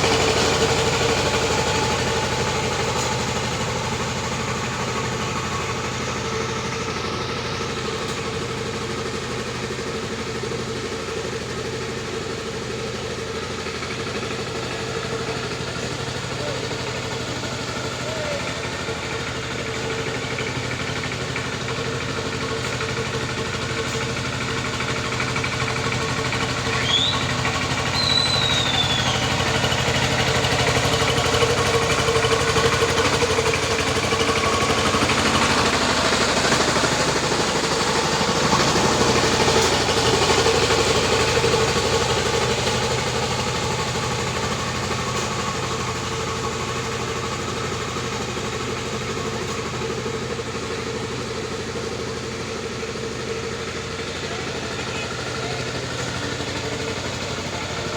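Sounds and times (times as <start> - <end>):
tractor engine running: 0.0 - 57.9
brief high chirps: 28.0 - 29.2.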